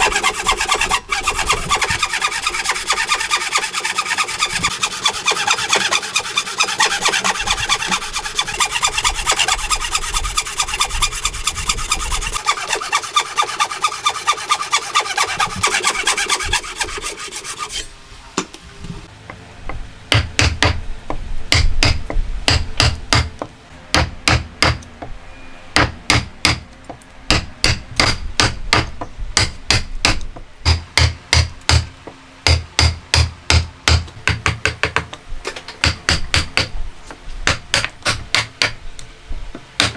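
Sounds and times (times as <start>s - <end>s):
hand tool rasping wood: 0.0s - 17.9s
hammer striking wood: 20.1s - 20.8s, 21.5s - 23.4s, 24.0s - 24.8s, 25.8s - 26.6s, 27.3s - 31.9s, 32.5s - 35.1s, 35.8s - 36.7s, 37.4s - 38.8s.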